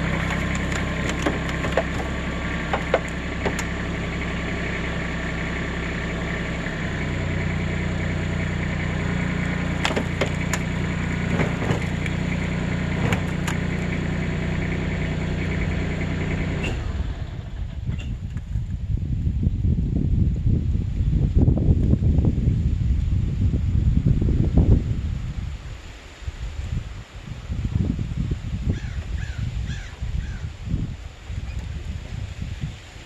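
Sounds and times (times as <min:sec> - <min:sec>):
sharp knocks and clicks: 0:00.0 - 0:03.8, 0:09.7 - 0:13.9
rustling outdoor background: 0:00.0 - 0:18.9
motor engine idling: 0:00.0 - 0:19.2.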